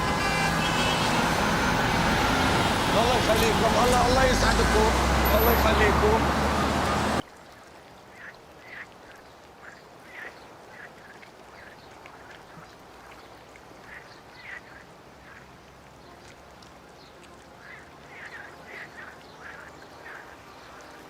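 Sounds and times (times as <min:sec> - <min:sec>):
birds calling: 0:08.1 - 0:21.0.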